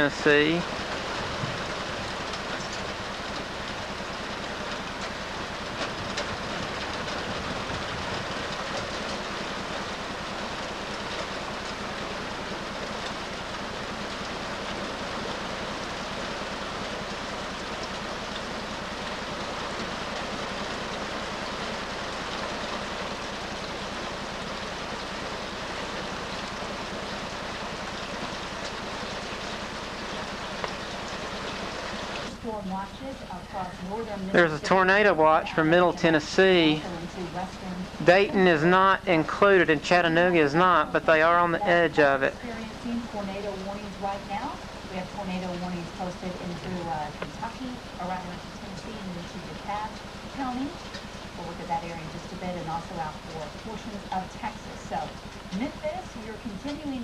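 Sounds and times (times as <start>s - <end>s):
hard rain downpour: 0.0s - 57.0s.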